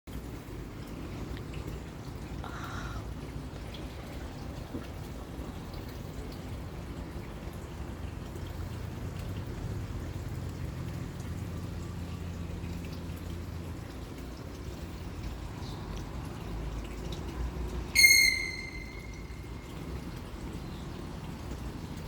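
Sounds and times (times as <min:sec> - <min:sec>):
low steady background noise: 0:00.1 - 0:22.0
loud high whistle: 0:18.0 - 0:19.5.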